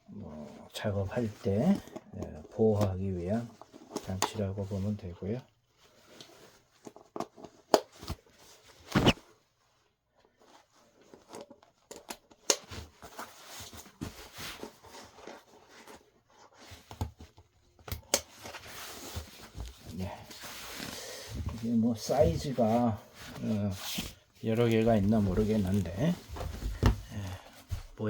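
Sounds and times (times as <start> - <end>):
packaging rustling: 23.9 - 27.5.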